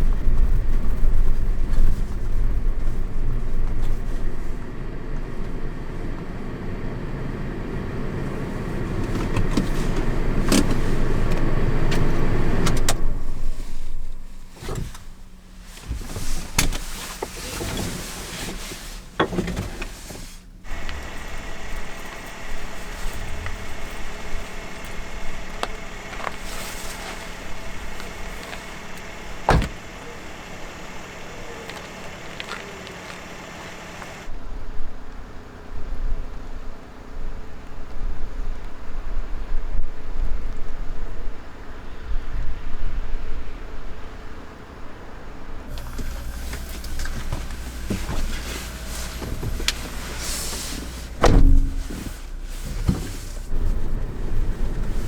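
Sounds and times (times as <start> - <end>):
quiet steady hum: 0.0 - 35.6, 45.5 - 55.0
car low rumble: 0.0 - 39.5, 40.4 - 55.0.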